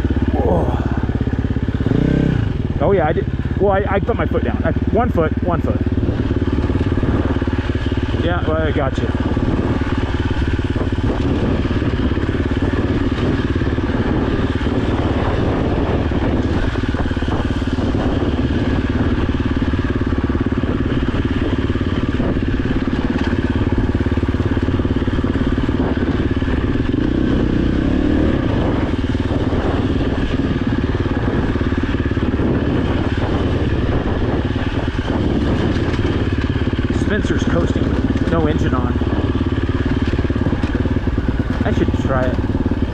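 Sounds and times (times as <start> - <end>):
dirt bike engine running: 0.0 - 42.9.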